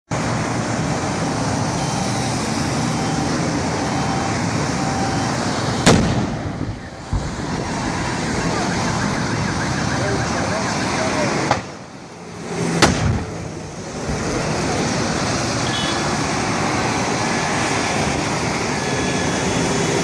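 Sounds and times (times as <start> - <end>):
roadway noise: 0.1 - 20.0
sharp explosion: 5.8 - 9.2, 12.7 - 13.4.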